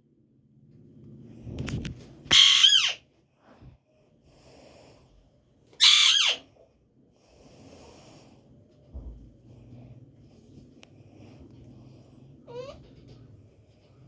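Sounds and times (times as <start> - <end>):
parrot screeching: 2.3 - 3.0, 5.8 - 6.5.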